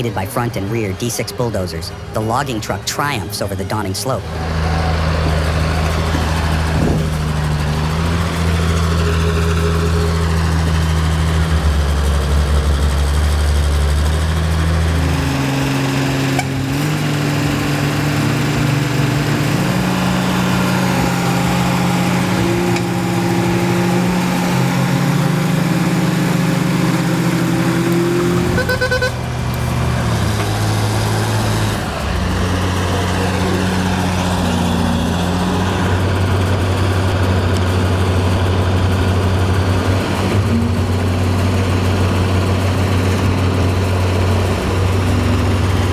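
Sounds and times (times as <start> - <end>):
heavy diesel engines running: 0.0 - 45.9
brief high-pitched tone: 28.6 - 29.2.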